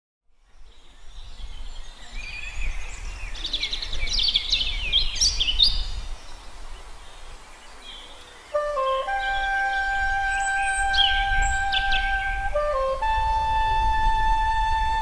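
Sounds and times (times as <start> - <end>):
songbirds singing: 0.3 - 15.0
flute playing held note: 8.6 - 15.0.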